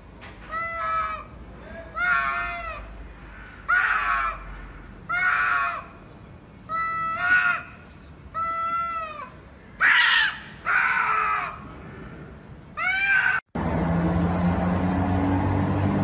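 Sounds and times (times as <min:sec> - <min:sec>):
cats yowling: 0:12.8 - 0:13.4.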